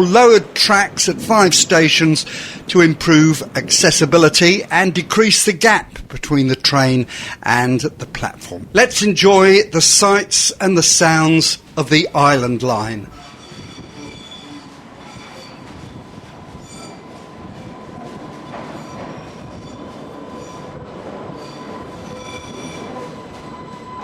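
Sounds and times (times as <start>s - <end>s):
electric train rumbling on rails: 0.0s - 24.0s
high wheel squeals: 13.1s - 17.2s, 18.7s - 24.0s.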